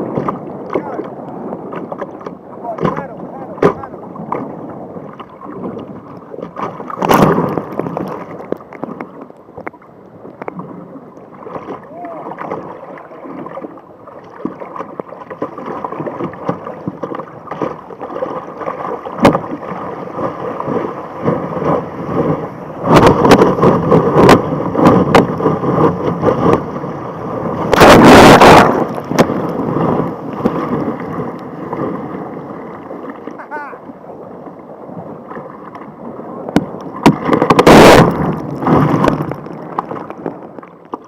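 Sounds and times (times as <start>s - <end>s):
sea water sloshing around kayak: 0.0s - 41.0s
water splashes: 0.0s - 41.0s
knocks on kayak: 2.7s - 4.4s, 36.5s - 39.9s.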